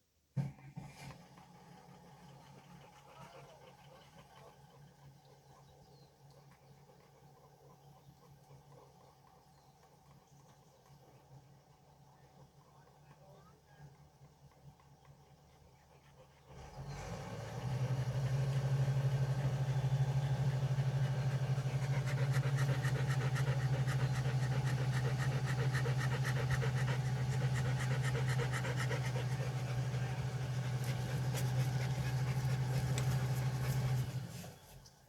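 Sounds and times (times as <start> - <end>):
tractor engine running: 18.0 - 34.6.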